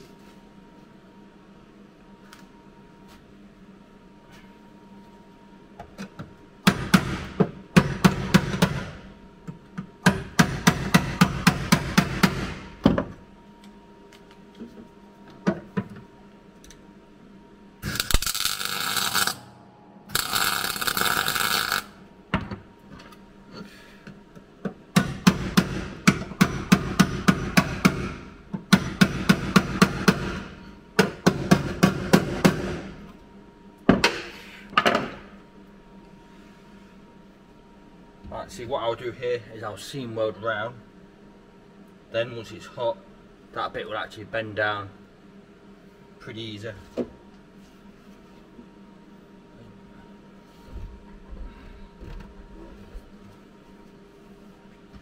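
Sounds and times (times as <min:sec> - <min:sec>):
welder crackling: 0:17.8 - 0:19.5, 0:20.1 - 0:22.0.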